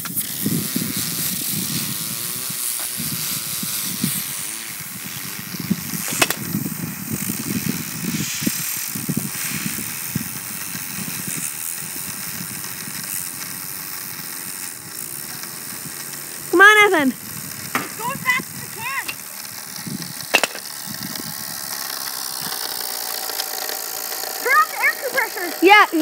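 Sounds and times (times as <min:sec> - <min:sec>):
sharp click: 0:06.0 - 0:06.5.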